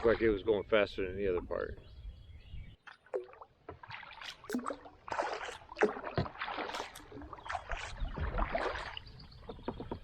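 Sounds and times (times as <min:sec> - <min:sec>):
kayak paddle splashing in water: 0:02.8 - 0:10.0.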